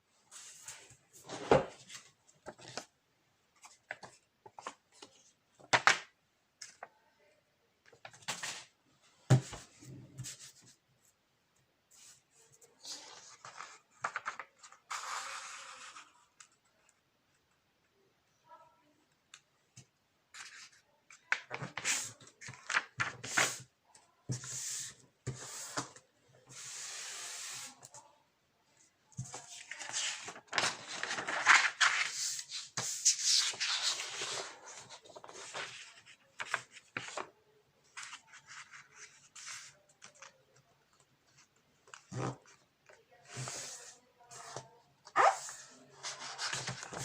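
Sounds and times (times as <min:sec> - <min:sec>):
paper rustling and creasing: 0:29.2 - 0:37.3, 0:43.3 - 0:47.0.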